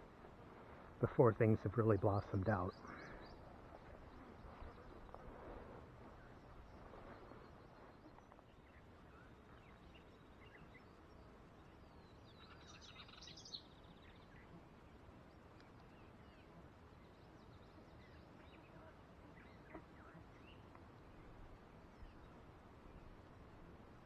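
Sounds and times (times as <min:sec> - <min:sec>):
bird chirps: 0:06.2 - 0:14.5.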